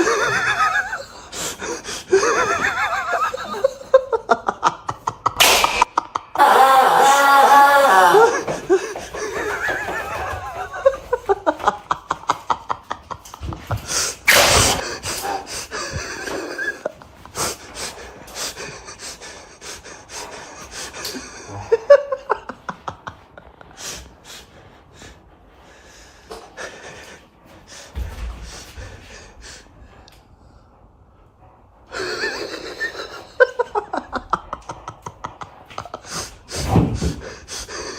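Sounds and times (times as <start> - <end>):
person stifling laughter: 0.0 - 14.0.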